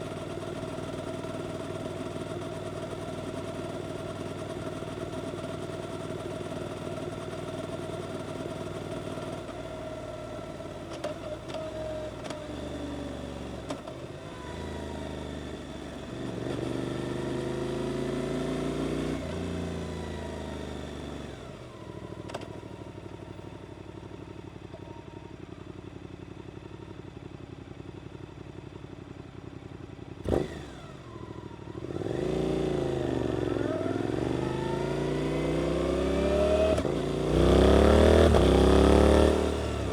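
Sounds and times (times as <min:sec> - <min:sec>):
motorcycle engine revving: 0:30.2 - 0:39.9.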